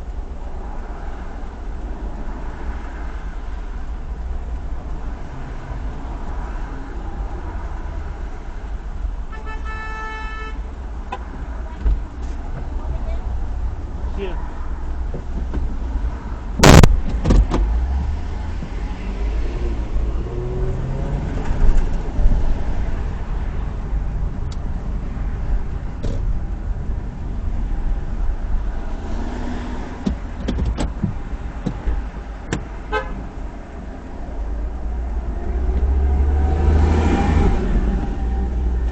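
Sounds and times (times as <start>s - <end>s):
car road and engine rumble: 0.0s - 38.9s
loud sharp bang: 16.6s - 17.5s.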